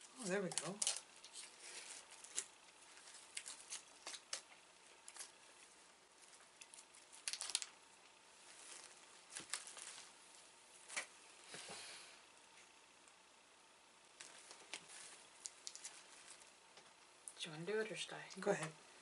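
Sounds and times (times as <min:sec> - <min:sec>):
snack packaging crinkling: 0:00.2 - 0:10.2, 0:14.2 - 0:16.6.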